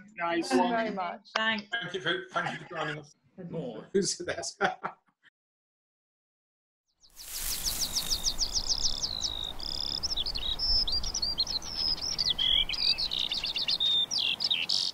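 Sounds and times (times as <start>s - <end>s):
faint outdoor hiss: 7.1s - 14.9s
songbird warbling: 7.1s - 14.9s.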